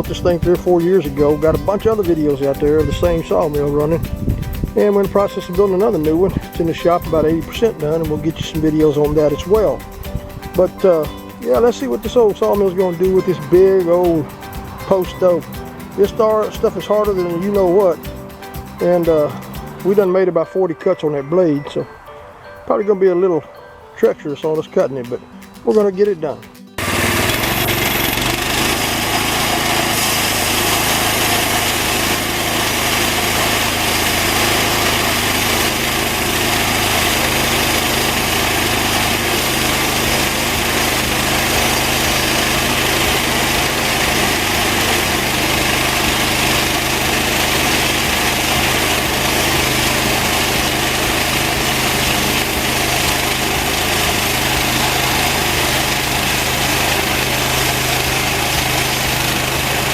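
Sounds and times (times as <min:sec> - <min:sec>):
band sawmill engine running: 0:00.0 - 0:20.3, 0:26.8 - 0:59.9
saw blade cutting through log: 0:26.8 - 0:59.9.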